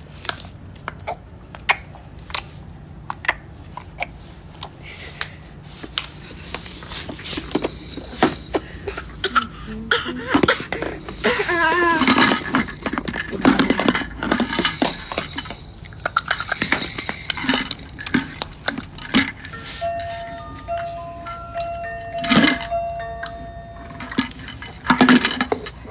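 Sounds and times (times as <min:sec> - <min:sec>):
baby mouth clicks and smacks: 0:00.3 - 0:05.3
baby squealing: 0:09.2 - 0:12.6.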